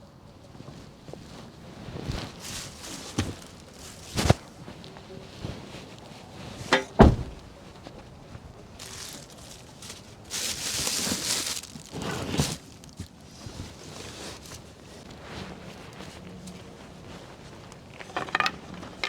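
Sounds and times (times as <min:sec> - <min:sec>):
sharp knocks and thuds: 0:06.7 - 0:07.5.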